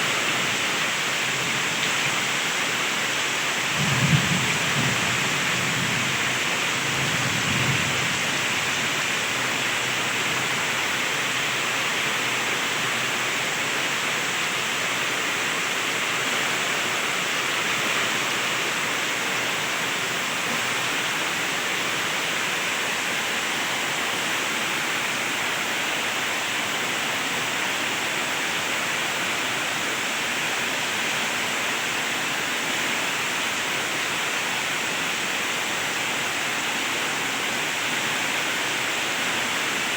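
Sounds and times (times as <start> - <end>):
heavy rain falling: 0.0 - 39.9
low thunder rumble: 3.8 - 6.3.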